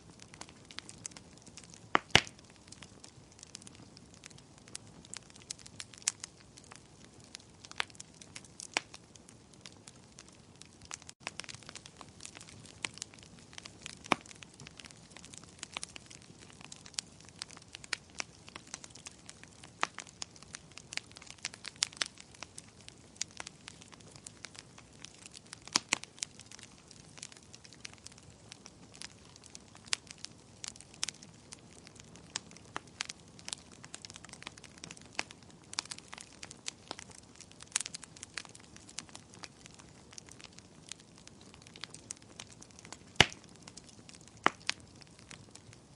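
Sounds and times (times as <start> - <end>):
fireplace fire crackling: 0.0 - 45.9.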